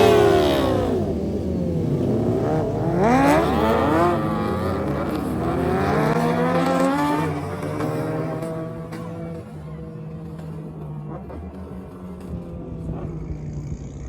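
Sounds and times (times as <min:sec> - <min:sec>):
vehicle engine revving hard: 0:00.0 - 0:09.4.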